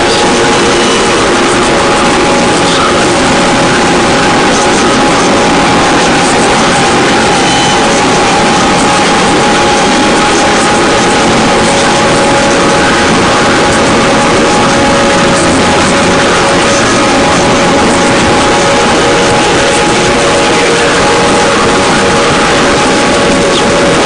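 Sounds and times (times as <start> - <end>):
harsh noise drone music: 0.0 - 24.0.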